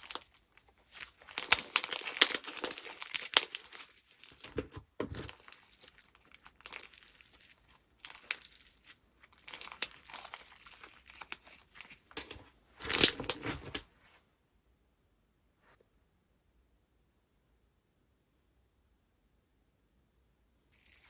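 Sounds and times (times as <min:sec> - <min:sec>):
slime crackling and tearing: 0:00.0 - 0:13.8.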